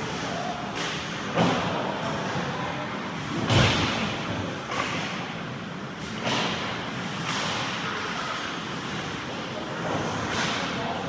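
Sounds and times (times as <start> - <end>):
arena crowd hubbub: 7.7 - 11.0.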